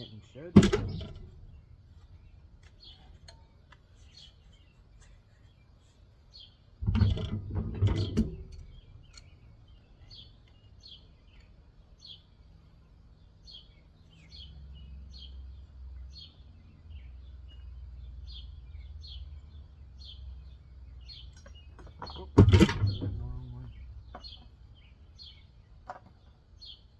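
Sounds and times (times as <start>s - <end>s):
low steady rumble: 0.0s - 3.0s, 6.8s - 10.3s, 22.1s - 24.9s
small birds chirping: 0.0s - 26.9s
metal parts clanking: 0.6s - 1.6s.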